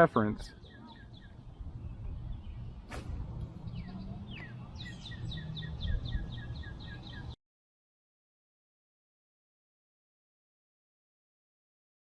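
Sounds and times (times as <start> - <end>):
songbird chirping rapidly: 0.2 - 7.4
sharp click: 2.9 - 3.6.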